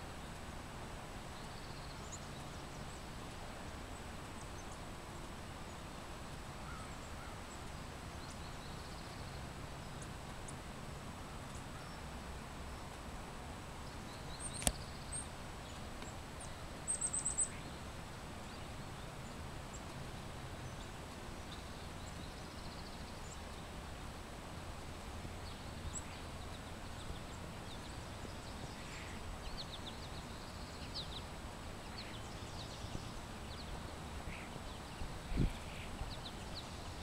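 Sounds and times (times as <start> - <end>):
steady background hiss: 0.0 - 37.0
distant small birds calling: 0.1 - 24.4, 25.0 - 37.0
sharp click: 14.5 - 14.8.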